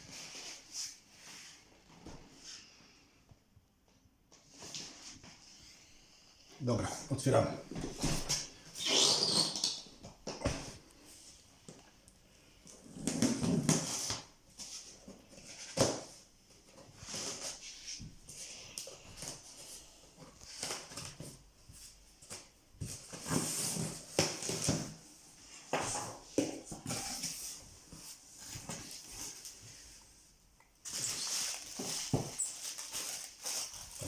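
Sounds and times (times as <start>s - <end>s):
packaging rustling and crinkling: 30.8s - 34.0s.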